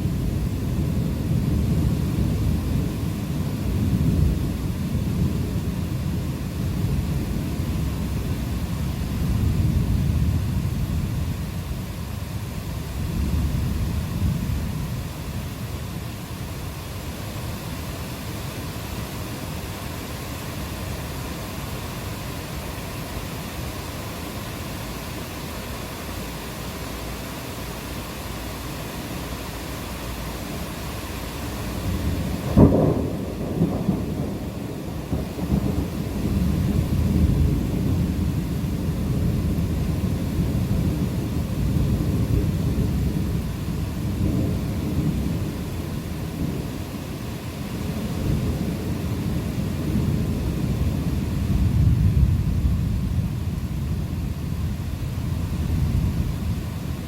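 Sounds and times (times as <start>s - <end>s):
low rumble of thunder: 0.0s - 26.8s, 28.8s - 57.0s
steady rain falling: 0.0s - 57.0s
thunder crack: 31.8s - 40.0s.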